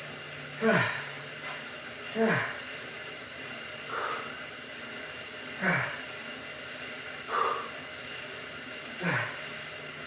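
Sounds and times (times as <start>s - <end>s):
man breathing hard: 0.6s - 1.2s, 3.8s - 4.4s, 7.2s - 7.9s, 9.0s - 9.6s.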